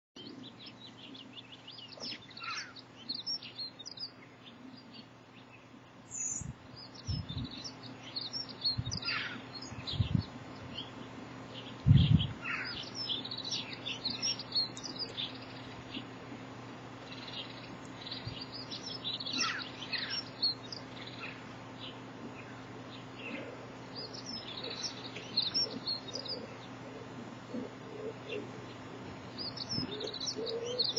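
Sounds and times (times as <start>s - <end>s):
small birds chirping: 0.2s - 30.9s
dull low thumps: 7.1s - 7.6s, 11.9s - 12.4s.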